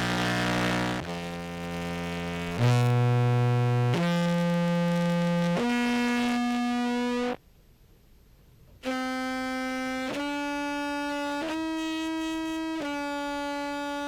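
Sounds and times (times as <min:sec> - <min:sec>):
sustained clarinet notes: 0:08.8 - 0:14.0.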